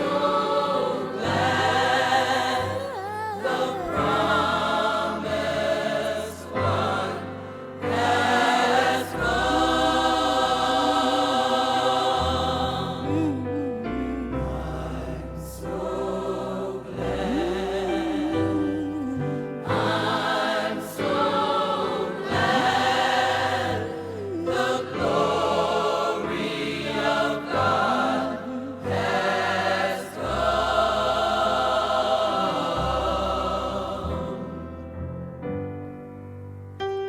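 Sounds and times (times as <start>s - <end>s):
gospel choir singing: 0.0s - 35.6s.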